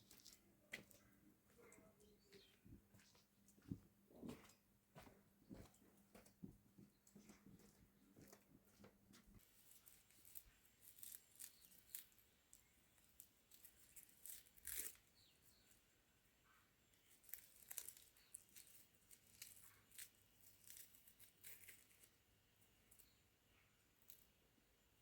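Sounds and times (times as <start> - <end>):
crisp clicks and crackles: 0.0 - 2.6, 9.4 - 15.8, 16.9 - 22.2, 23.9 - 24.4.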